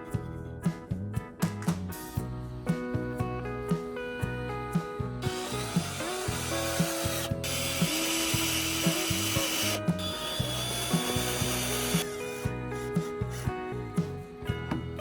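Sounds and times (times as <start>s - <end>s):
background music with steady beat: 0.0s - 15.0s
tool scraping: 5.2s - 15.0s.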